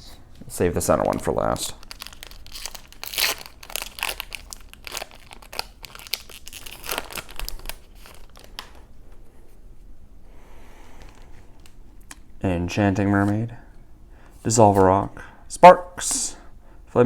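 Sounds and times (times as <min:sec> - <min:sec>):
foil wrapper crinkling: 0:01.0 - 0:08.9.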